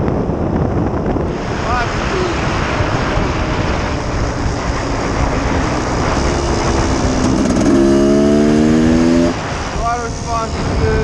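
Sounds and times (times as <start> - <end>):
two-stroke engine revving: 1.9 - 9.6.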